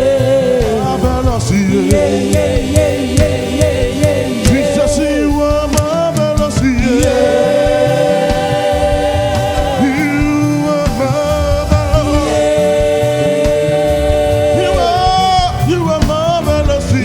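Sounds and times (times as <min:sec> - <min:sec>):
gospel choir singing: 0:00.0 - 0:17.0.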